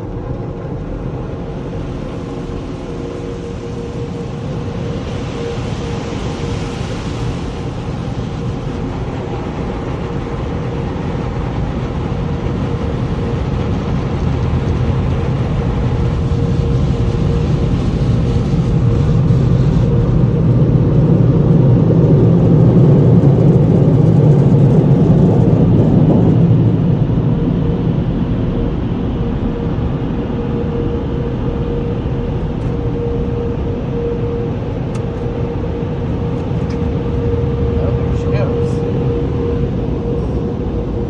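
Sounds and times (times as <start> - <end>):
car wash machinery running: 0.0 - 41.0.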